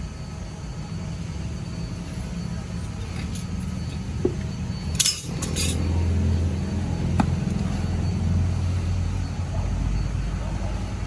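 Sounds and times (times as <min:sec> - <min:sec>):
steady low hum: 0:00.0 - 0:11.0
light metallic clinks: 0:04.9 - 0:05.9.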